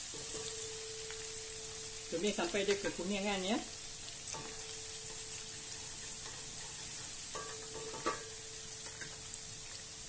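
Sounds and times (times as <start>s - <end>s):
onions sizzling in hot oil: 0.0s - 10.0s
spatula knocking against pan: 7.4s - 9.2s.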